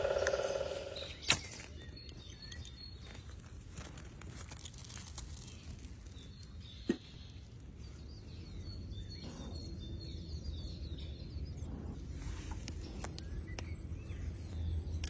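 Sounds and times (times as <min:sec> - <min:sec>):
bird chirps: 0:00.0 - 0:03.2.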